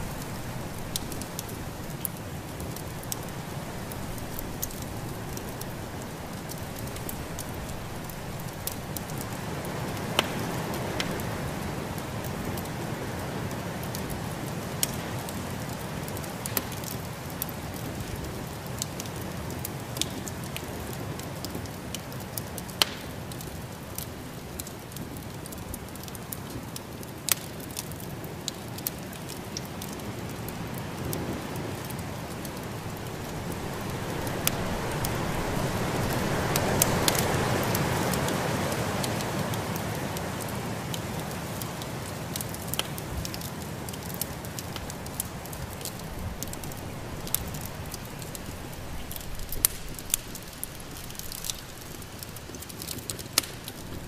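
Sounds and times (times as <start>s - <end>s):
wood fire crackling: 0.0s - 54.0s
snowstorm wind: 31.2s - 39.1s.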